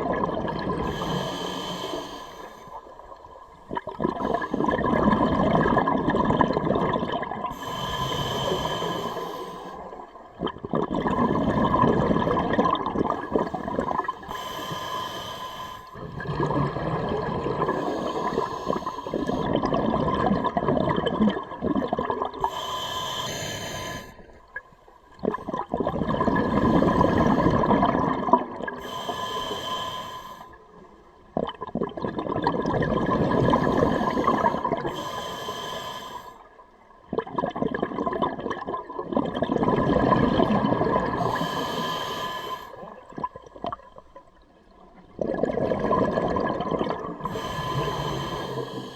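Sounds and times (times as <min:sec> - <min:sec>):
regulator hissing inhalations: 0:00.9 - 0:02.7, 0:07.5 - 0:09.9, 0:14.2 - 0:15.9, 0:22.5 - 0:24.3, 0:28.8 - 0:30.6, 0:33.8 - 0:36.5, 0:41.2 - 0:42.8, 0:47.3 - 0:48.9
diver bubbling exhalations: 0:03.7 - 0:07.5, 0:10.4 - 0:14.3, 0:25.2 - 0:28.8, 0:45.1 - 0:48.6.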